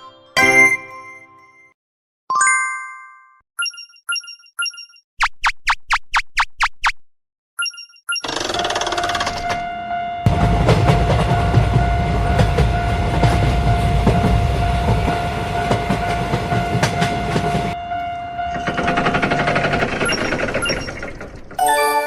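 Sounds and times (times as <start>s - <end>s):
train rumbling and wheels clattering: 9.0s - 21.6s.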